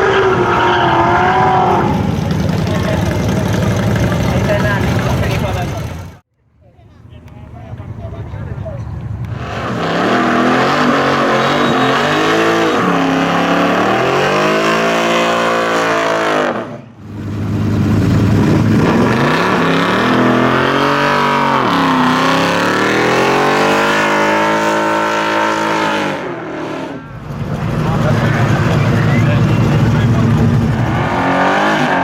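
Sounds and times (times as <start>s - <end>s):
car engine revving: 0.0s - 6.2s, 7.2s - 32.0s.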